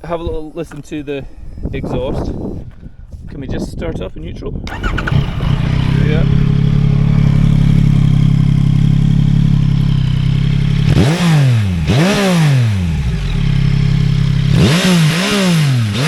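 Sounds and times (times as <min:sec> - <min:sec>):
motorcycle engine idling and revving: 0:04.6 - 0:16.0.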